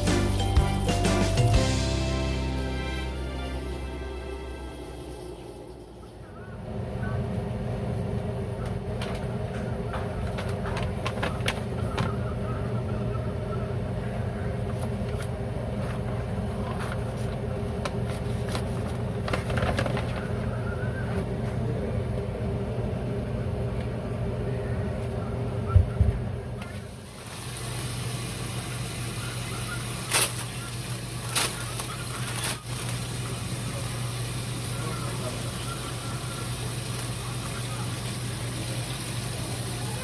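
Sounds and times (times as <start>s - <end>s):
steady mechanical hum: 0.0s - 40.0s.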